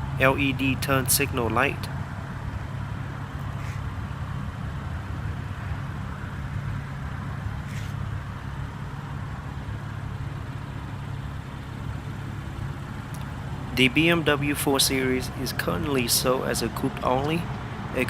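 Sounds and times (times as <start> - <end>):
vehicle rumble: 0.0 - 18.0
faint clicks: 13.1 - 13.4.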